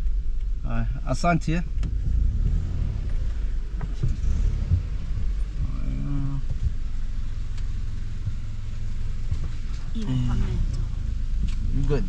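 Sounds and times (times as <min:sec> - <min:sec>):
road noise: 0:00.0 - 0:12.0
vehicle engine rumble: 0:00.0 - 0:12.0
knocks over bumps: 0:01.7 - 0:07.2.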